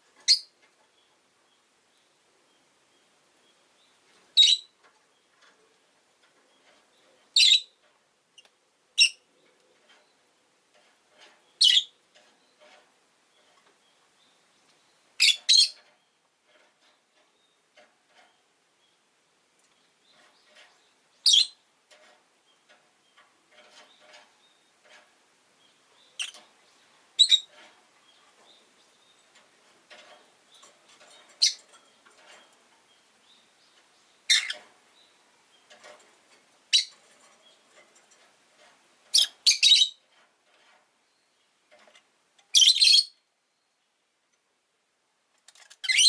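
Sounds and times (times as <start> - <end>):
shrill bird chirps: 4.4 - 4.7, 11.6 - 11.9, 15.2 - 15.8, 21.2 - 21.6, 27.2 - 27.5, 34.3 - 34.6, 39.1 - 40.0, 42.6 - 43.8
bird chattering: 34.3 - 34.6.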